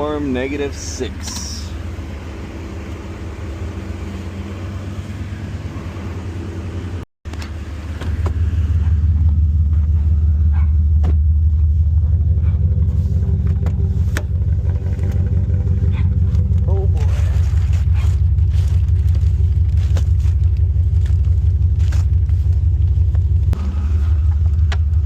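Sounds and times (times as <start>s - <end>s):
engine rumbling inside a cab: 0.0s - 25.0s.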